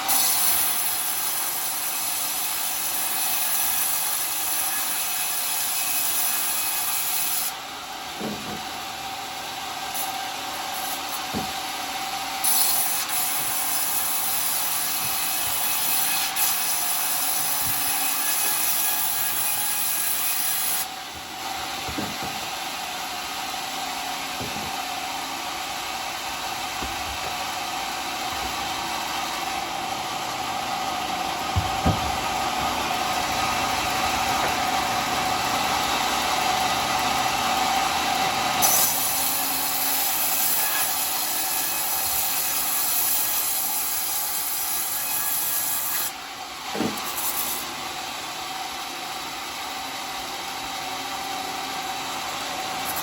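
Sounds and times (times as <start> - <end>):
saw cutting wood: 0.0 - 53.0
saw blade humming: 6.4 - 46.2
knocks: 21.8 - 22.5, 24.4 - 24.8, 31.5 - 32.9.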